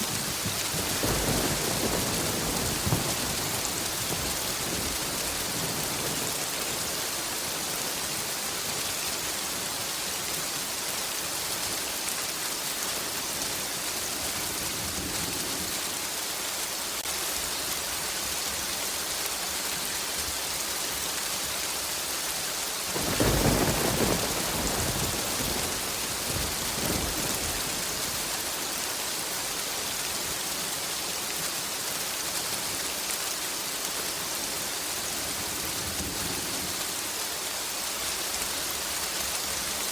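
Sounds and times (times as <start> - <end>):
thunder clap rumbling: 0.0 - 7.0, 23.0 - 28.5
heavy rain falling: 0.0 - 39.9.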